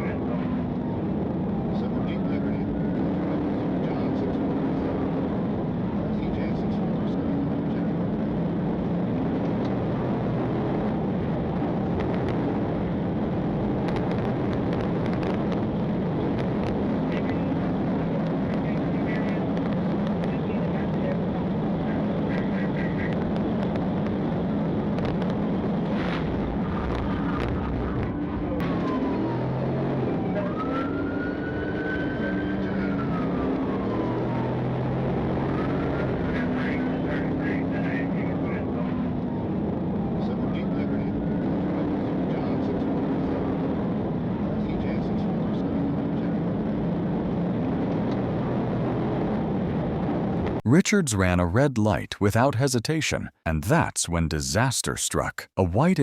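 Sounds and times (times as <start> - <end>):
vehicle engine drone: 0.0 - 50.8
police siren wailing: 27.4 - 36.3.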